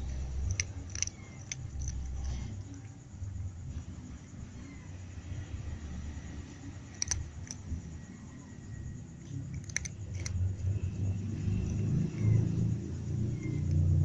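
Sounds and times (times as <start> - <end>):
sharp clicks: 0.0 - 2.4, 6.9 - 7.8, 9.2 - 10.4
cat chewing food: 0.0 - 3.0, 9.3 - 12.4.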